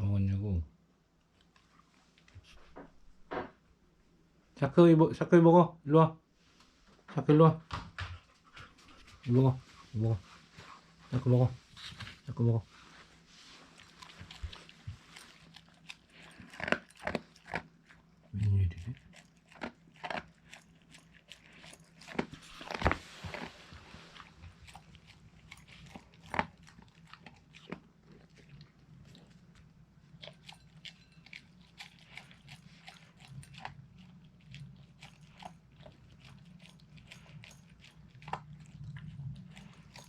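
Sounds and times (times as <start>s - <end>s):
dog crunching and chewing: 8.0s - 40.0s.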